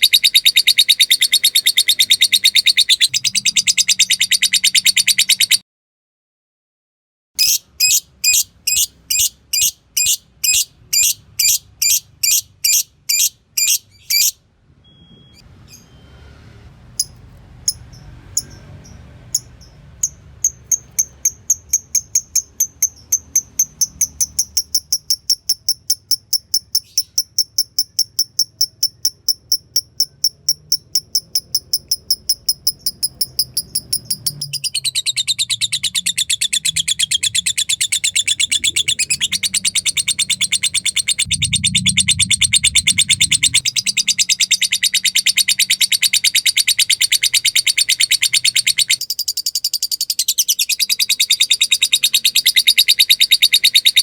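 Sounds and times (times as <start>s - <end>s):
lovebird rapid chatter: 0.0s - 5.6s, 19.3s - 54.0s
lovebird high-pitched chips: 7.4s - 14.4s, 17.0s - 41.3s.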